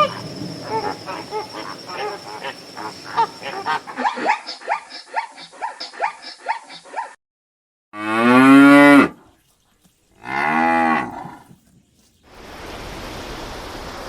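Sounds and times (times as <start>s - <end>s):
short animal calls: 0.0s - 4.0s.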